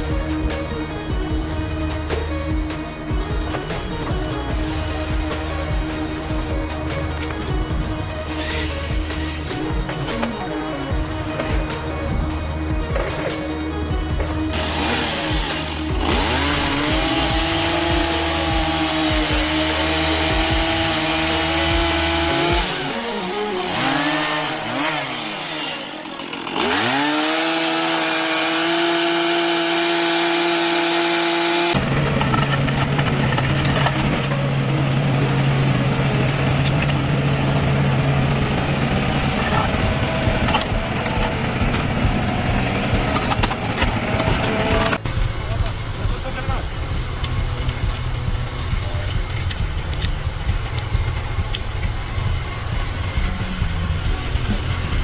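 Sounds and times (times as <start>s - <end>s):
machine low steady drone: 0.0s - 30.8s, 31.6s - 55.0s
chainsaw engine high revs: 0.0s - 31.8s.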